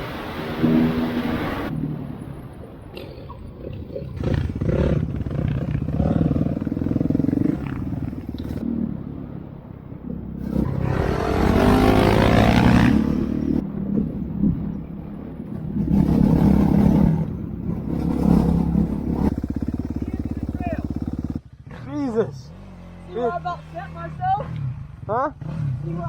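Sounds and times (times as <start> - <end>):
dirt bike engine revving: 4.2 - 9.1, 10.4 - 13.6, 15.7 - 26.0.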